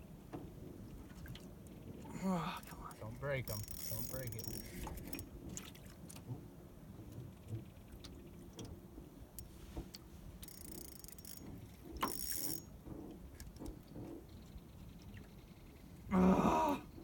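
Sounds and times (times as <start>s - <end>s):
fishing reel clicking: 2.9s - 5.2s, 10.4s - 12.7s.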